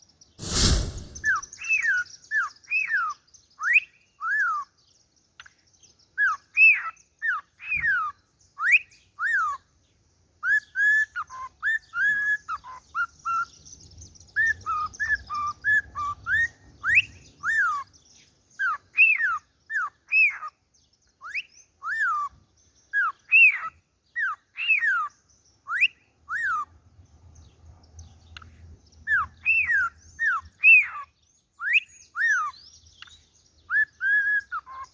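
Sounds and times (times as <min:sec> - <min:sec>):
cockatiel chirps: 0:06.2 - 0:09.6, 0:18.6 - 0:20.6, 0:21.2 - 0:26.7, 0:28.4 - 0:34.9.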